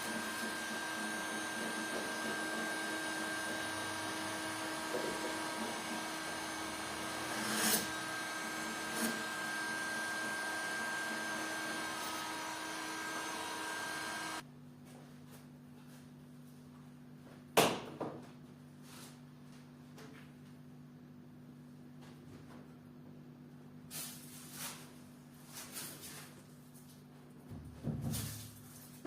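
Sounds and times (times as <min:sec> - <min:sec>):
small electric motor whirring: 0:00.0 - 0:14.4.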